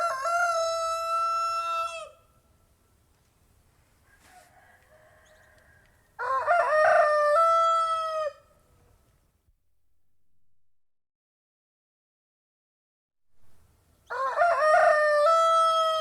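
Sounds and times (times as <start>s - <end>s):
rooster crowing: 0.0s - 2.3s, 4.0s - 8.5s, 14.1s - 16.0s
faint rooster calls: 0.0s - 2.4s, 3.8s - 9.1s, 14.0s - 16.0s.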